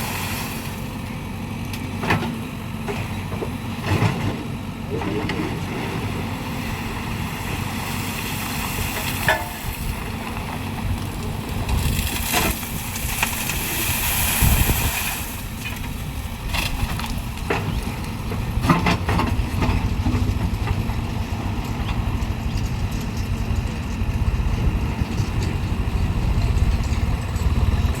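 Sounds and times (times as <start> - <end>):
rushing hiss: 0.0 - 0.8, 13.4 - 15.4
diesel machinery engines running: 0.0 - 28.0.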